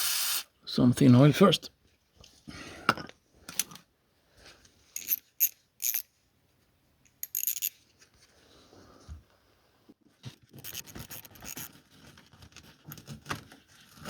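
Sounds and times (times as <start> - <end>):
spray can hiss: 0.0 - 0.5.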